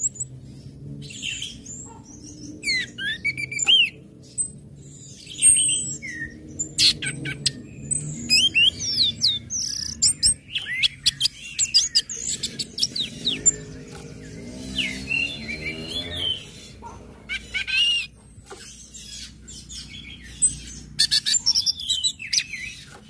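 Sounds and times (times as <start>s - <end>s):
thrush singing: 6.0s - 17.7s.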